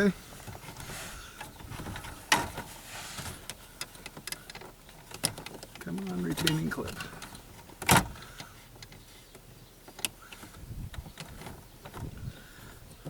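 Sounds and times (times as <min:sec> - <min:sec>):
hand handling noises: 0:00.0 - 0:13.0.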